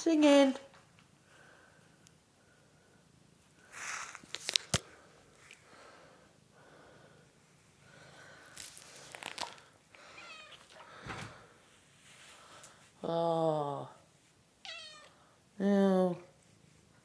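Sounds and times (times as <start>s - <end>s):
rustling: 3.6s - 5.7s, 7.4s - 13.1s
cat meowing: 10.1s - 10.8s, 14.6s - 15.2s.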